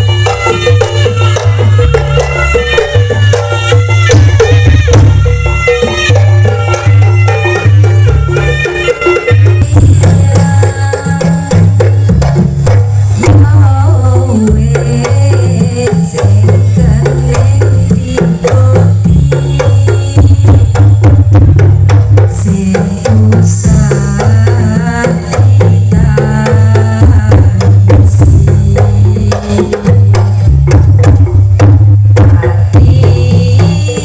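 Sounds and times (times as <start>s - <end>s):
wavering melody: 0.0s - 13.4s
heavy bass notes: 0.0s - 22.3s, 23.6s - 34.0s
rapid hand drum strokes: 0.0s - 34.0s.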